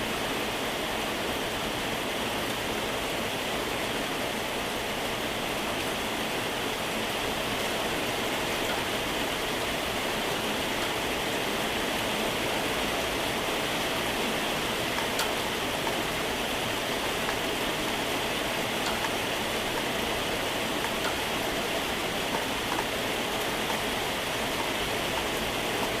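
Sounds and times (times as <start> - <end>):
heavy rain hissing: 0.0 - 26.0
raindrop ticks: 7.6 - 11.8, 14.4 - 26.0.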